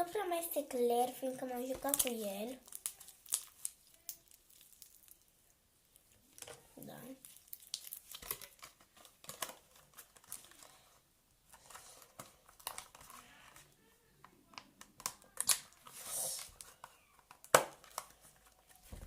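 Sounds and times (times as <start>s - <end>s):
sticky slime crackling: 0.7s - 10.8s.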